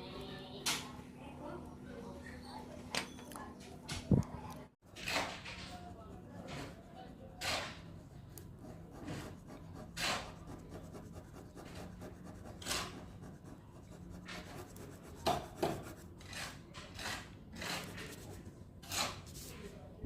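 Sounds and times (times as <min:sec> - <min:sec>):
pen scratching on paper: 0:04.9 - 0:19.5.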